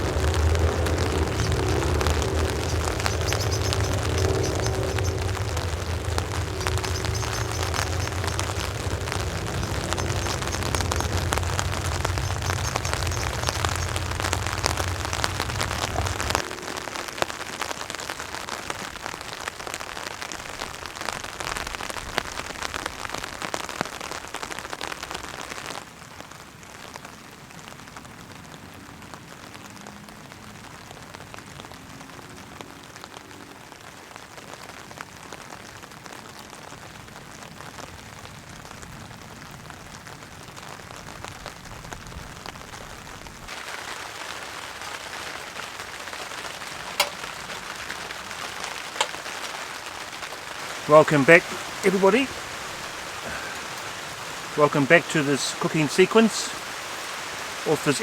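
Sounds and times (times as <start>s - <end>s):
low rumble: 0.0s - 18.1s
heavy rain on a tarp: 0.0s - 58.0s.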